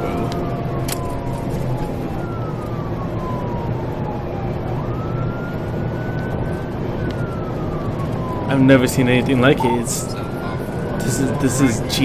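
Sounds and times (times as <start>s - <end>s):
engine and road noise: 0.0s - 12.0s
police siren wailing: 0.0s - 12.0s.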